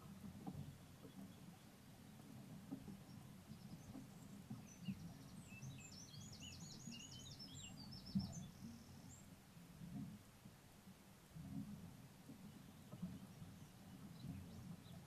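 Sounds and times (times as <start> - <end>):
songbird chirps and trills: 0.0 - 9.5, 12.3 - 15.0.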